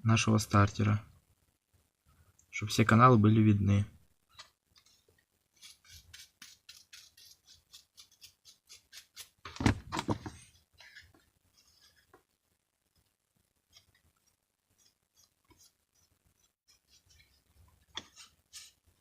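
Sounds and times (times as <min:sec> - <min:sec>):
small tool scratching and clicking: 0:05.6 - 0:09.4, 0:13.7 - 0:18.8.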